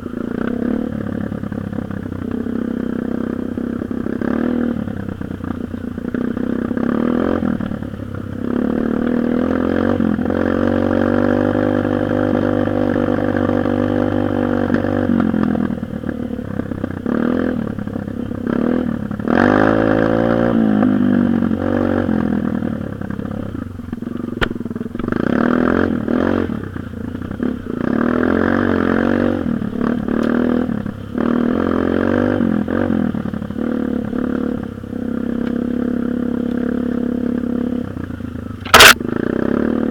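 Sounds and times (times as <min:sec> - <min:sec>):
dirt bike engine revving: 0:18.5 - 0:22.2, 0:38.6 - 0:39.9.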